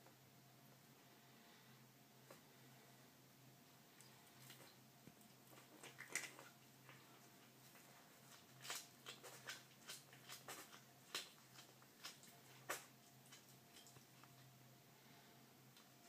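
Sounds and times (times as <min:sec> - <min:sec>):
cat chewing wet crunches: 0:04.0 - 0:14.6.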